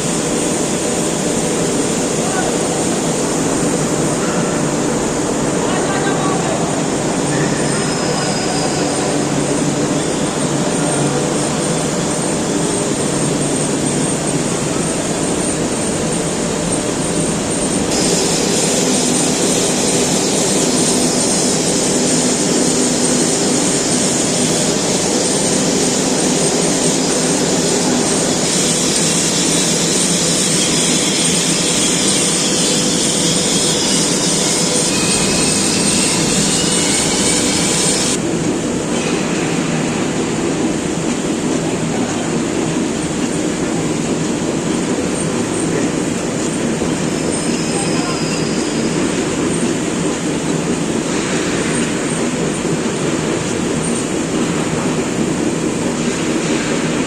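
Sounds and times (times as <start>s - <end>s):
harsh machine hiss: 0.0s - 38.2s
industrial machine noise: 0.0s - 57.0s.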